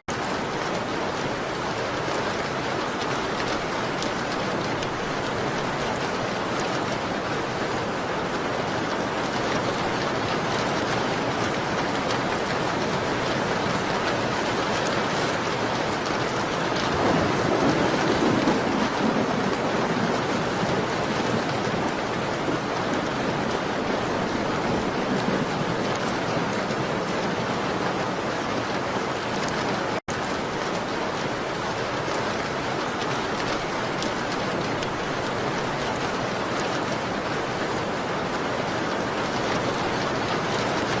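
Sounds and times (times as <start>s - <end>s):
rain on window glass: 0.1s - 41.0s.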